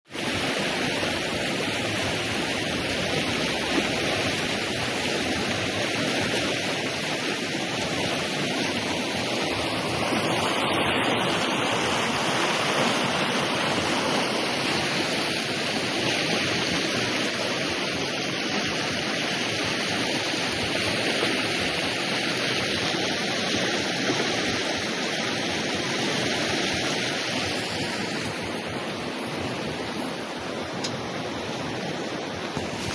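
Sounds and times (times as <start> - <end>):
river water rushing: 0.1 - 32.9.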